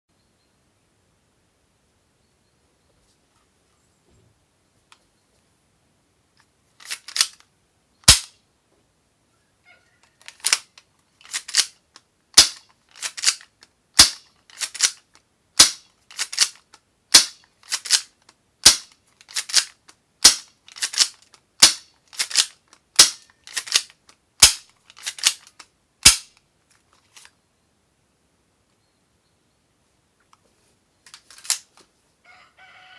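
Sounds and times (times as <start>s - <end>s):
toy pistol shot snap: 8.0s - 8.3s, 14.0s - 15.0s, 15.6s - 16.5s, 17.2s - 18.0s, 20.2s - 25.4s, 26.0s - 26.3s.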